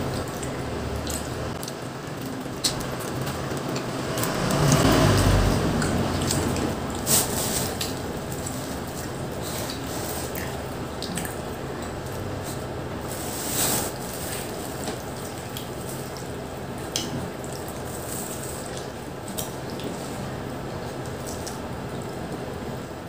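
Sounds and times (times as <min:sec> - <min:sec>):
chewing pizza with wet smacks: 0:07.8 - 0:12.9.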